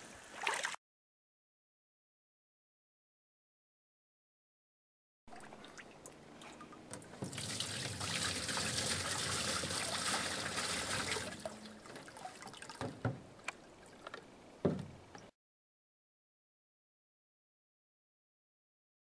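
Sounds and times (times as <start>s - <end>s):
water trickling and splashing: 0.0s - 0.8s, 5.3s - 15.3s
small knocks: 12.8s - 15.3s.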